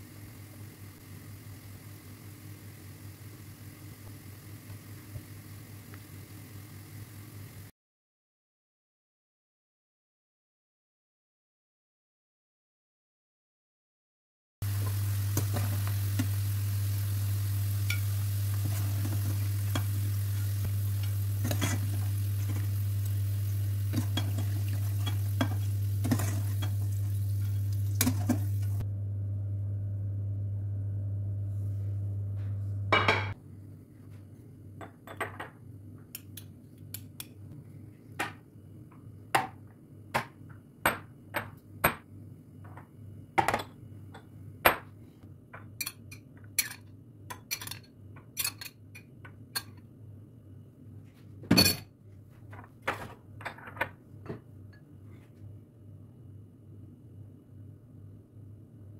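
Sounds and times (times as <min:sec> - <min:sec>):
kitchen appliance humming: 0:00.0 - 0:07.7, 0:14.6 - 0:33.4
utensils and dishes clinking: 0:17.8 - 0:22.6, 0:23.9 - 0:28.8.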